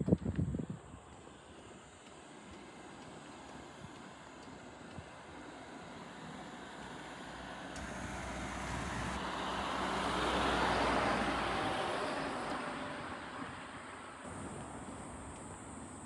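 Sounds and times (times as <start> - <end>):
vehicle passing by: 7.8 - 13.3.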